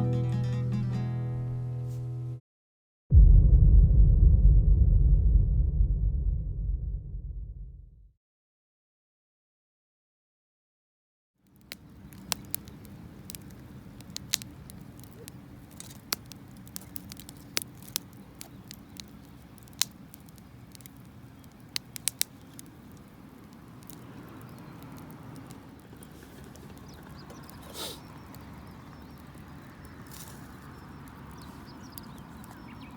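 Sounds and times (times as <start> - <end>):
campfire crackling and popping: 11.4 - 32.9.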